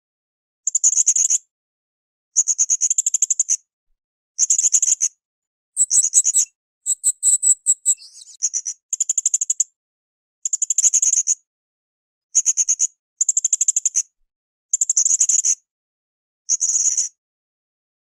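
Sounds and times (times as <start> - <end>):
parrot trilling chirps: 5.8 - 8.4.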